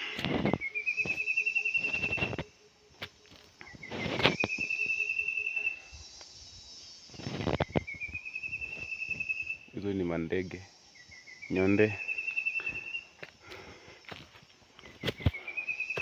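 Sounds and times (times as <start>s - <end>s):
bird pulsed trill: 0.0s - 13.3s, 13.9s - 16.0s.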